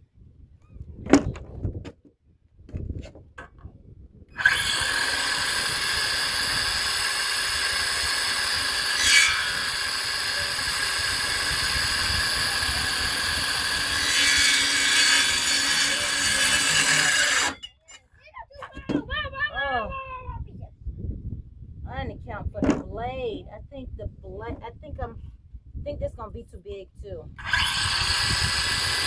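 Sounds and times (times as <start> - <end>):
power saw cutting wood: 4.4 - 17.9, 27.4 - 29.0.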